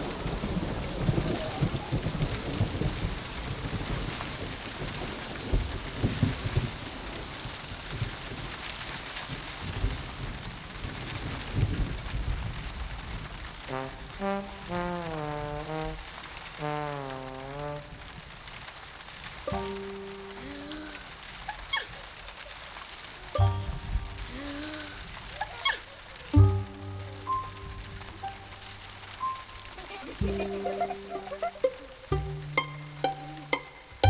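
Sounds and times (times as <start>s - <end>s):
thunder rumbling: 0.0s - 18.6s, 22.2s - 34.0s
steady rain: 0.0s - 34.0s
melody of bending notes: 14.2s - 16.0s, 19.5s - 20.7s, 23.4s - 24.4s, 26.3s - 34.0s.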